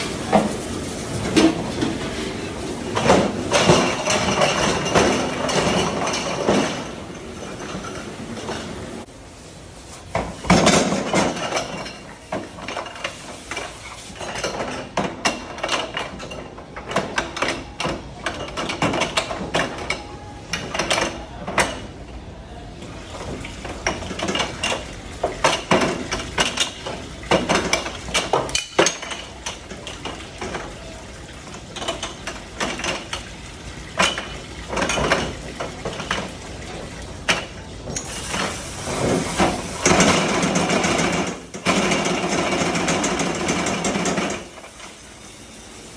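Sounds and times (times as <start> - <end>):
dishes and silverware clattering: 3.0 - 8.8, 23.2 - 30.7.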